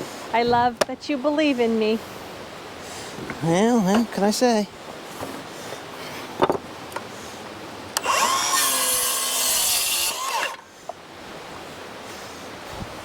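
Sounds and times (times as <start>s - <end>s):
power saw cutting wood: 8.0s - 10.7s.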